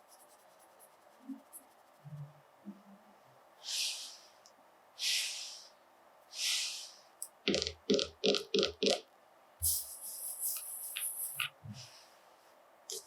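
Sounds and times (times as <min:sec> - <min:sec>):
short hissing puffs: 0:03.6 - 0:04.4, 0:05.0 - 0:07.1, 0:09.6 - 0:12.0.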